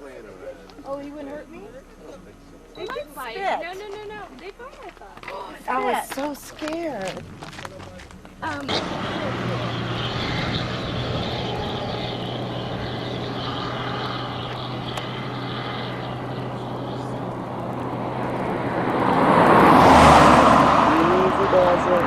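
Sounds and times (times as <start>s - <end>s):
steady low engine hum: 0.0s - 22.0s
vehicle passing close by: 7.0s - 22.0s.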